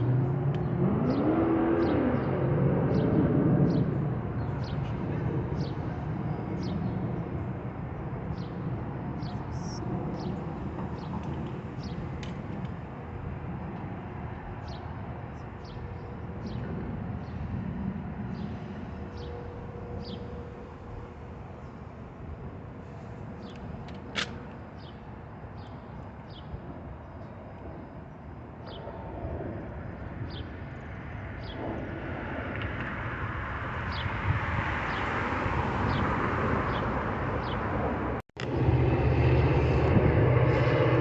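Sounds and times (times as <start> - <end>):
low vehicle rumble: 31.2 - 41.0.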